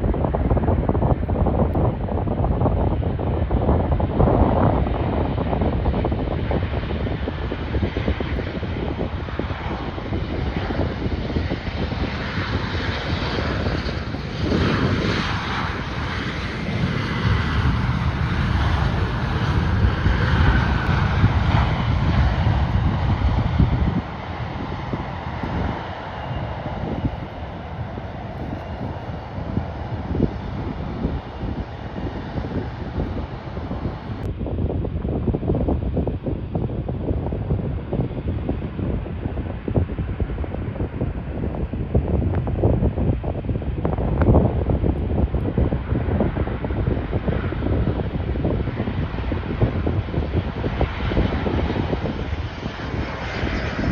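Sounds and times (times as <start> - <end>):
wind rumble on microphone: 0.0 - 53.9
jet engines whining: 3.0 - 34.4, 43.9 - 53.9.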